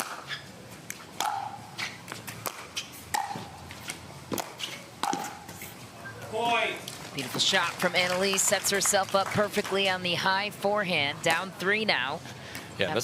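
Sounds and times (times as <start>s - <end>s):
ball bouncing on court: 1.2s - 3.6s, 4.3s - 5.5s.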